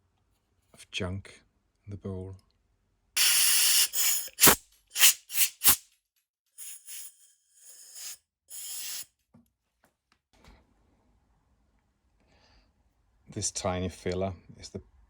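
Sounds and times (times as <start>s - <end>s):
hissing spray blasts: 3.2s - 5.8s, 6.6s - 9.0s.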